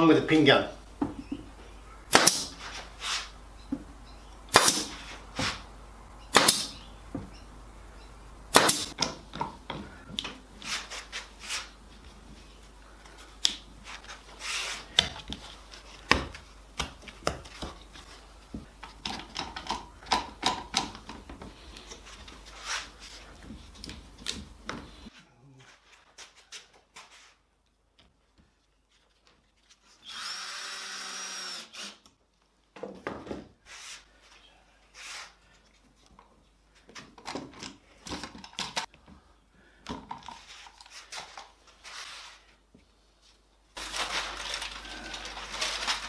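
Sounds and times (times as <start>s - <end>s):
pin gun firing: 2.1s - 2.5s, 6.3s - 6.8s, 8.5s - 8.9s.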